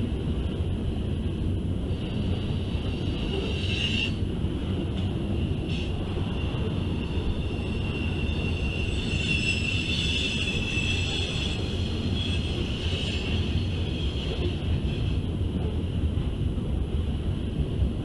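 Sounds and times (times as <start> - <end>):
high-pitched wheel squeal: 7.0 - 14.4.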